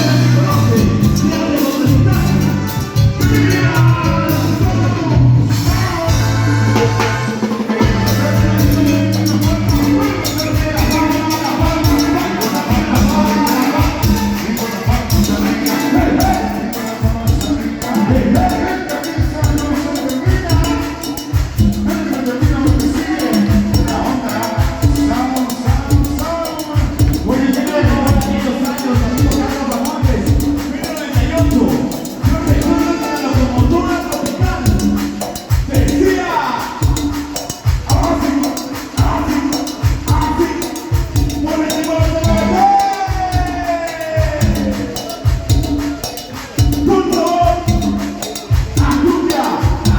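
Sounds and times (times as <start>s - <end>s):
bass and drum beat: 0.0s - 49.9s
latin dance band playing: 0.0s - 49.9s.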